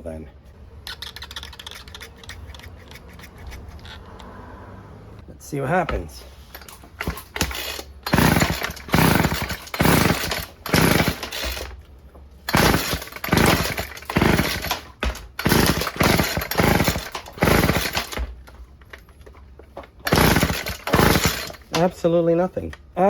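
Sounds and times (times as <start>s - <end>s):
recoil starter pulls: 5.9s - 22.8s
engine turning over: 6.5s - 11.8s, 12.4s - 19.1s, 20.0s - 21.9s.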